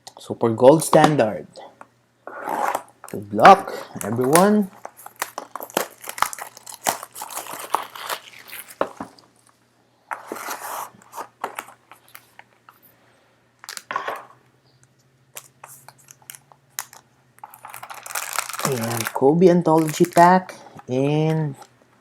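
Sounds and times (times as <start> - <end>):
plastic wrapping crinkling and tearing: 2.6 - 9.2, 13.6 - 13.9, 15.4 - 20.5.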